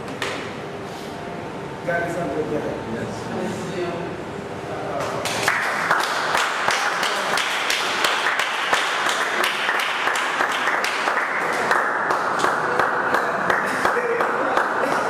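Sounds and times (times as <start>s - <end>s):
hands clapping: 5.0s - 15.0s
crowd cheering: 5.4s - 15.0s.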